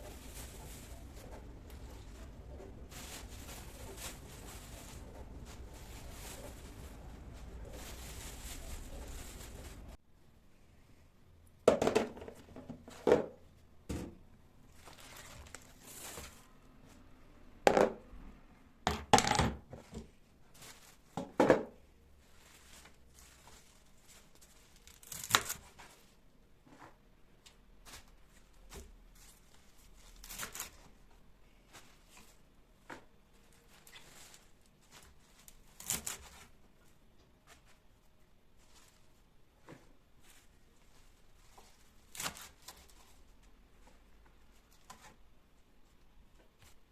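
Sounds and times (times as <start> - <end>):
rustling and tearing: 0.0 - 10.0, 14.7 - 16.5, 20.4 - 21.2, 22.2 - 26.2, 27.8 - 37.9, 38.5 - 39.3, 39.9 - 45.2
items knocking on counter: 11.7 - 14.2, 17.7 - 18.0, 18.9 - 20.1, 21.2 - 21.8.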